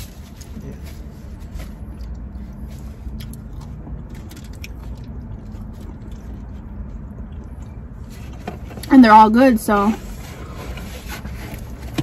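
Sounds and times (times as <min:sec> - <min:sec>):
person chewing chicken wing: 0:01.8 - 0:07.9.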